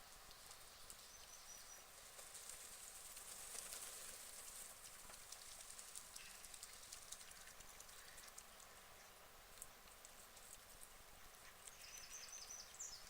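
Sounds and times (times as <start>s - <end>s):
soft high hiss: 0.0s - 13.0s
light ticks: 9.5s - 10.9s
small bird chirping: 11.4s - 13.0s.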